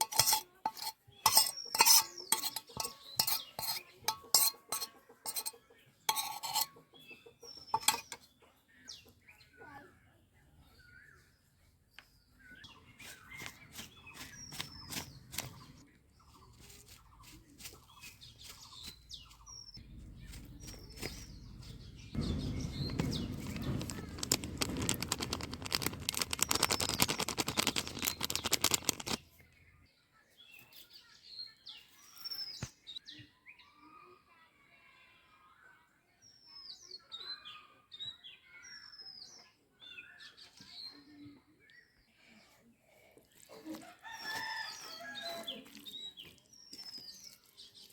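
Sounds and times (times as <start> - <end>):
small birds chirping: 0.0 - 34.4, 36.3 - 47.9
loud dense crackling noise: 22.2 - 29.2
scattered clicks: 22.6 - 29.2.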